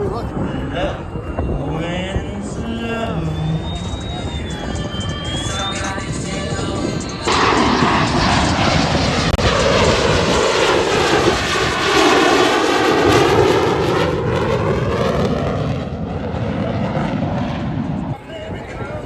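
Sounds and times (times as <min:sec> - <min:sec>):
airplane passing low: 0:00.0 - 0:19.0.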